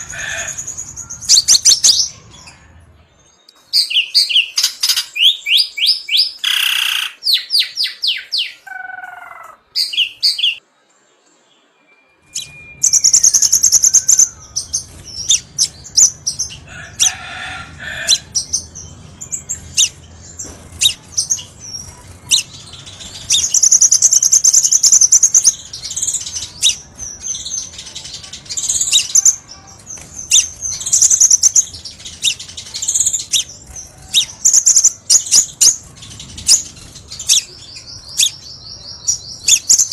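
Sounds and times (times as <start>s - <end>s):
bird chirps and trills: 0.0s - 10.6s, 11.6s - 39.9s.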